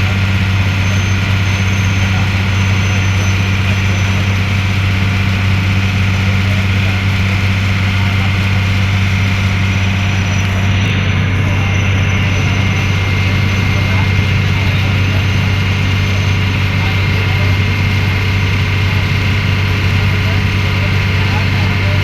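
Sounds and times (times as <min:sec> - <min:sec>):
diesel engine droning: 0:00.0 - 0:22.0
noisy water wash: 0:00.0 - 0:22.0.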